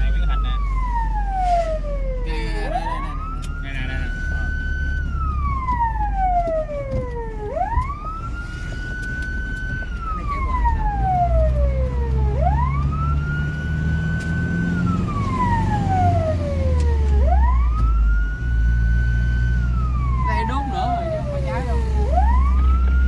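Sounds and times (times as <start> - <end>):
fire engine siren wailing: 0.0 - 23.0
truck engine rumble: 0.0 - 23.0.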